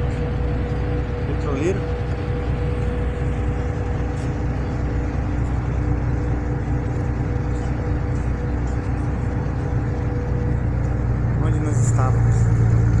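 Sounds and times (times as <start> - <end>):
ferry engines rumbling: 0.0 - 13.0.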